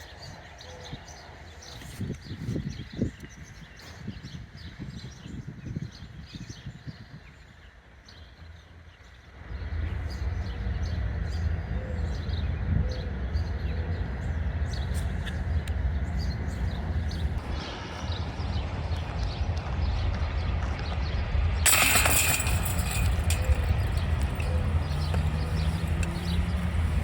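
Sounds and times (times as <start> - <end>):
birds chirping: 0.0 - 20.0, 21.7 - 27.0
steady low rumble: 9.4 - 27.0.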